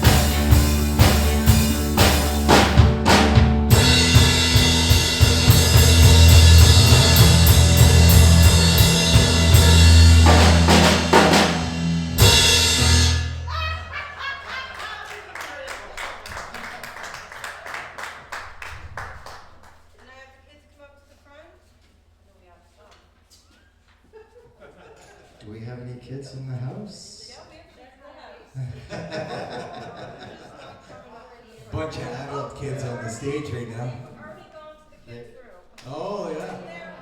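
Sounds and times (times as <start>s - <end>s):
drum kit playing: 0.0s - 13.8s
live band music: 0.0s - 13.8s.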